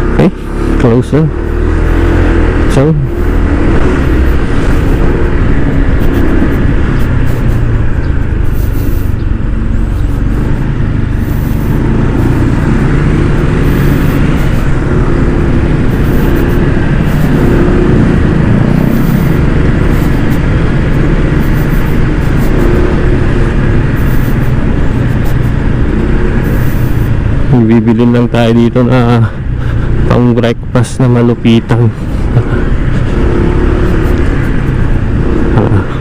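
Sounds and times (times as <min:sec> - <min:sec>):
road and traffic noise: 0:00.0 - 0:36.0
scooter engine running: 0:00.0 - 0:36.0
wind rush on microphone: 0:01.6 - 0:27.5.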